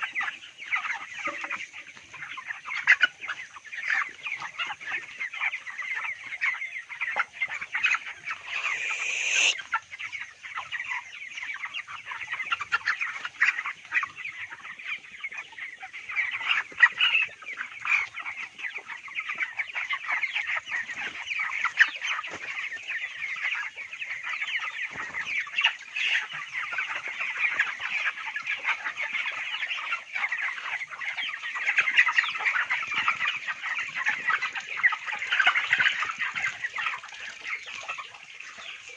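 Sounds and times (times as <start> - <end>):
chickens chirping and clucking: 0.0 - 38.9
faint high hiss: 7.8 - 10.2.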